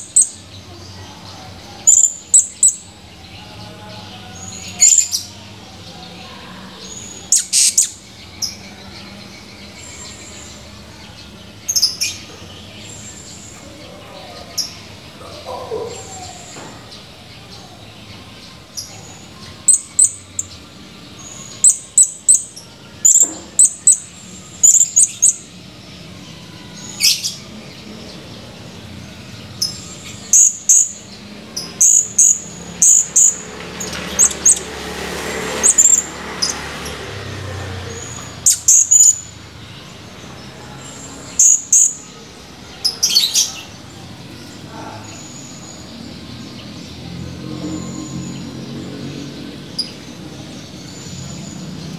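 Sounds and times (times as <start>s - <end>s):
parrot chirping: 1.8s - 2.9s, 7.3s - 8.0s, 21.5s - 25.4s, 29.6s - 33.4s, 34.1s - 34.7s, 35.6s - 36.6s, 37.9s - 39.3s, 41.3s - 42.1s.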